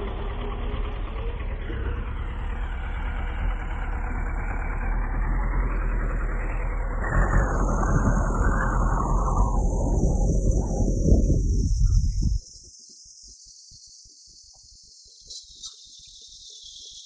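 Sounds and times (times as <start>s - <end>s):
bulldozer diesel engine running: 0.0s - 12.4s.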